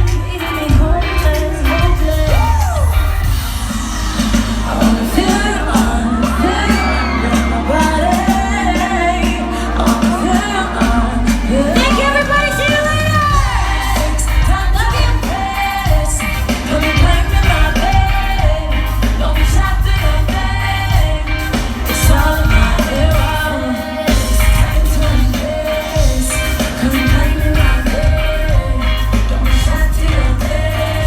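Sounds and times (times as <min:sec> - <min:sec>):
female vocal group singing: 0:00.0 - 0:31.0
heavy bass beat: 0:00.0 - 0:31.0.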